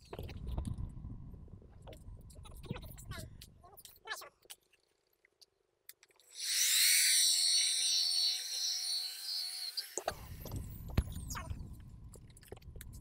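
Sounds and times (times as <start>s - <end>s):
polishing machine whining: 6.3s - 10.6s.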